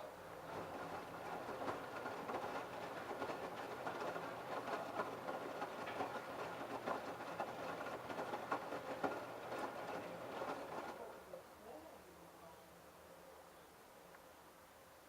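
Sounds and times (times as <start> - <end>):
laundry sloshing in washing machine: 0.4 - 11.0.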